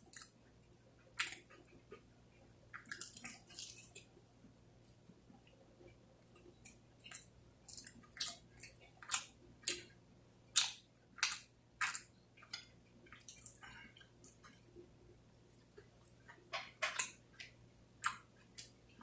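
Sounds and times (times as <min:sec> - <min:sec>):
person chewing and eating: 0:00.0 - 0:19.0.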